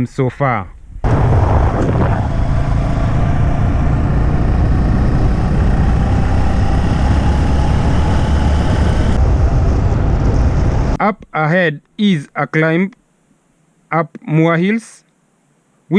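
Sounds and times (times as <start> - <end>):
vehicle engine rumbling: 1.0 - 11.0.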